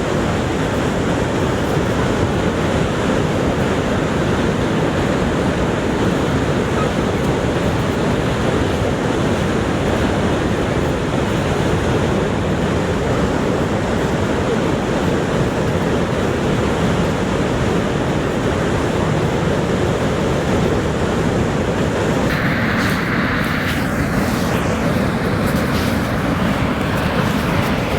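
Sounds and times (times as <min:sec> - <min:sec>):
waterfall thundering: 0:22.2 - 0:27.9.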